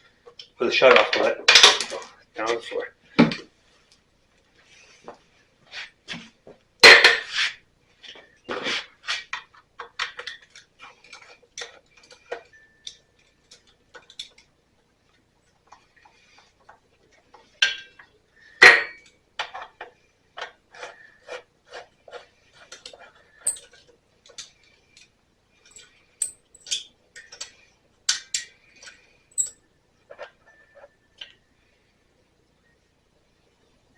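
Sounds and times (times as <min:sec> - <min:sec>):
metal tools and parts clinking: 0:22.7 - 0:24.5, 0:25.6 - 0:29.6.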